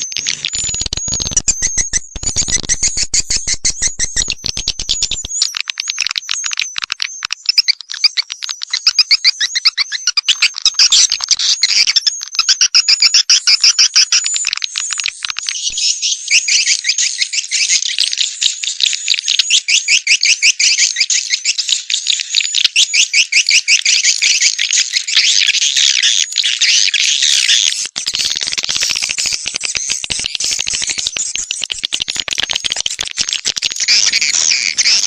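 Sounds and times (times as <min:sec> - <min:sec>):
swiftlets chirping: 0:00.0 - 0:06.8, 0:28.0 - 0:35.0.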